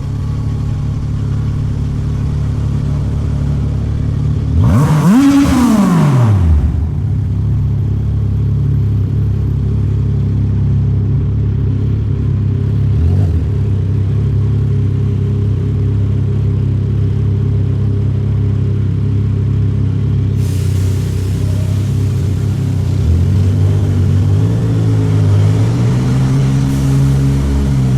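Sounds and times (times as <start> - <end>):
motorcycle engine idling: 0.0 - 4.6, 6.6 - 25.2
hiss: 20.4 - 24.2, 25.8 - 27.9.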